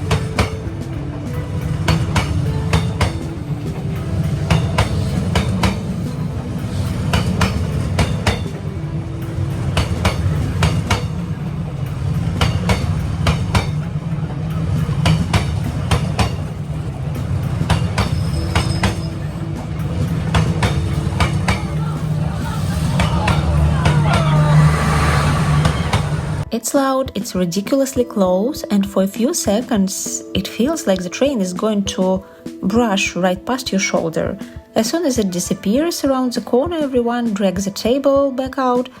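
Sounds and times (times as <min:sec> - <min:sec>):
train rumble passing: 0:00.0 - 0:26.5
wheel clacks over rail joints: 0:00.0 - 0:26.5.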